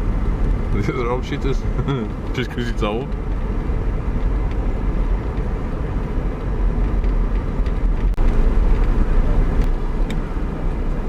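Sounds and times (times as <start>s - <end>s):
car engine rumble: 0.0s - 11.0s
road noise inside car: 0.0s - 11.0s.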